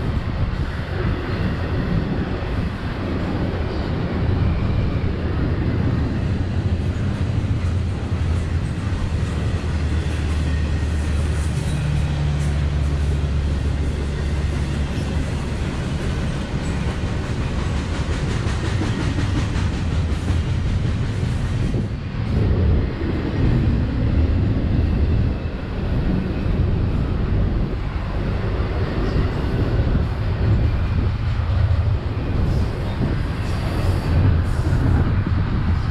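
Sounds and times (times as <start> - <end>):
freight train rumbling: 0.0 - 35.9.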